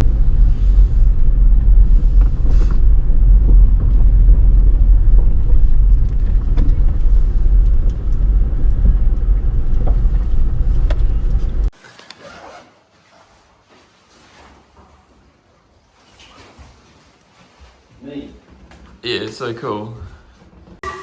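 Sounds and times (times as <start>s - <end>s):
car road and engine rumble: 0.0s - 11.7s.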